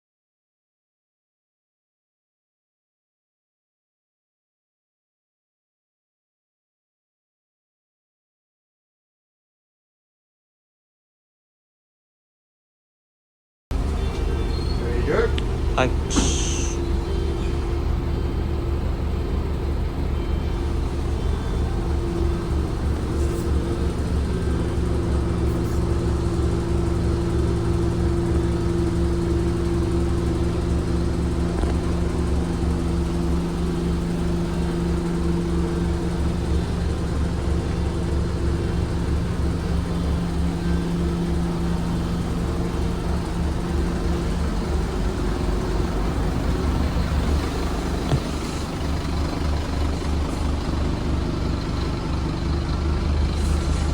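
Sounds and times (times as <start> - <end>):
bus diesel engine rumble: 13.7 - 53.9.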